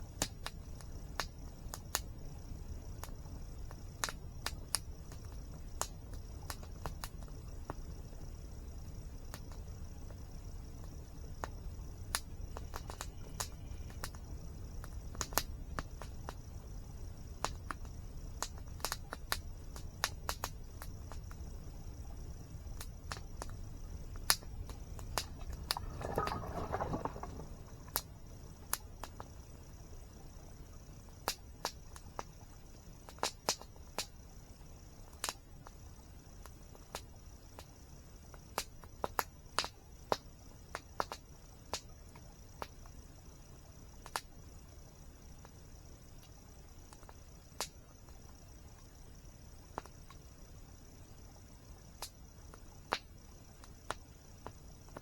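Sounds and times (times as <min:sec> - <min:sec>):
insect drone: 0:00.0 - 0:55.0
campfire crackling and popping: 0:22.8 - 0:29.2.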